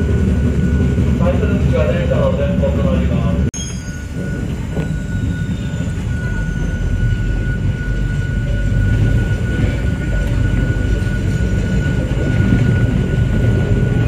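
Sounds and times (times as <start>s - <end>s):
thin high whine: 0.0s - 14.0s
train wheels rumbling: 0.0s - 14.0s.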